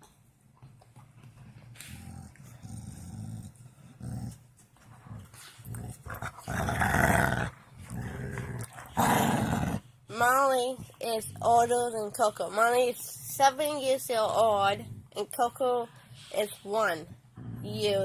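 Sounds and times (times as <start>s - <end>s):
dog growling: 1.4s - 9.9s, 14.2s - 15.4s, 17.1s - 18.0s.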